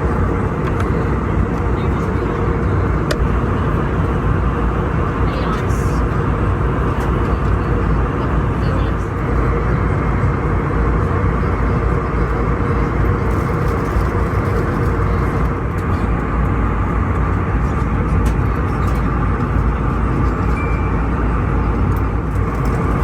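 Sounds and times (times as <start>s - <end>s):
airliner cabin roar: 0.0s - 23.0s
steady hum: 0.0s - 23.0s.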